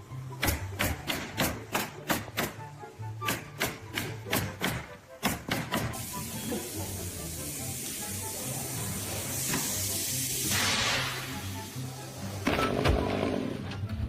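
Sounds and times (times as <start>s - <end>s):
background music: 0.0s - 14.0s
steady hiss: 5.8s - 12.4s.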